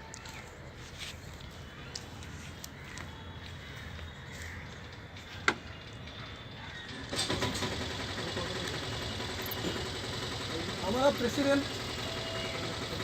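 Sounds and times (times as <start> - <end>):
vehicle engine running: 6.9 - 13.0.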